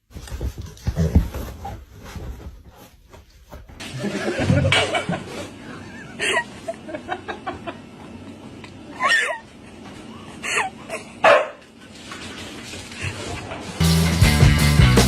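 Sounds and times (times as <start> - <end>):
dog barking: 11.2 - 11.6.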